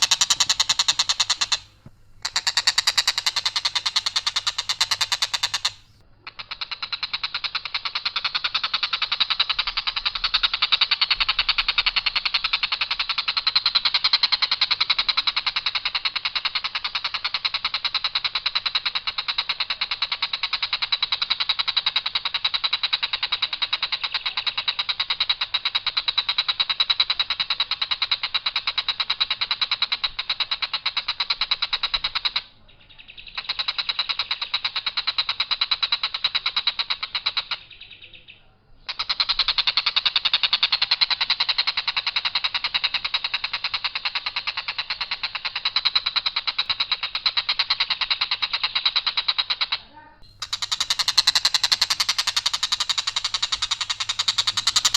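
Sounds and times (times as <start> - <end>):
kingfisher rapid harsh trill: 0.0 - 6.0, 50.2 - 54.9.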